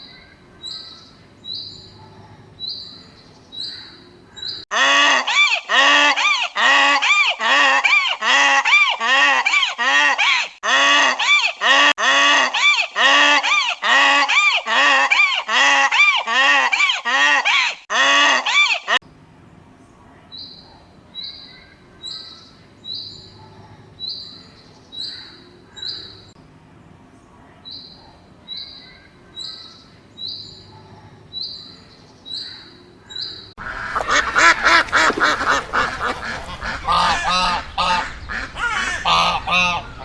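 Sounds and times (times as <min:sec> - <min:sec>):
flock of birds calling: 0:33.6 - 0:40.0.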